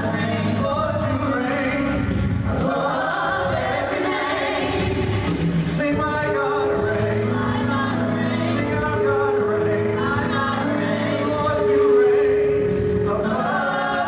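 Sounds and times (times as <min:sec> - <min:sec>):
choir singing with instrumental backing: 0:00.0 - 0:14.0.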